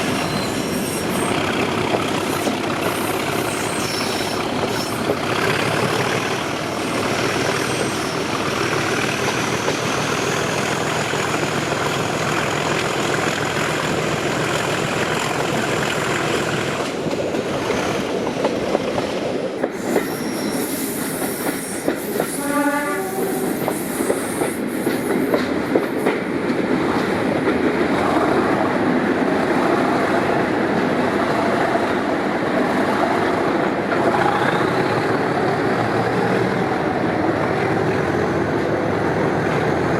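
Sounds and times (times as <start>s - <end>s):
diesel locomotive engine: 0.0s - 39.9s
train horn: 22.3s - 23.7s.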